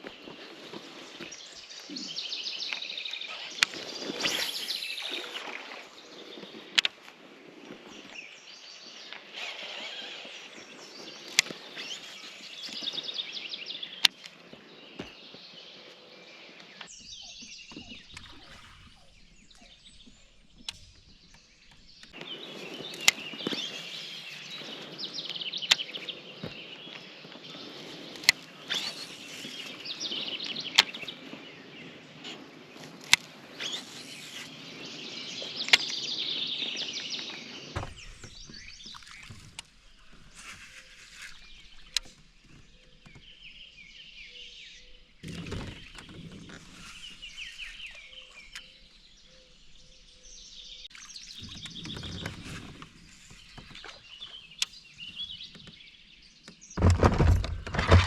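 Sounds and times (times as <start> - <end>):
small birds chirping: 0.0 - 6.8, 7.6 - 58.0
low knocks or rustles: 56.8 - 58.0.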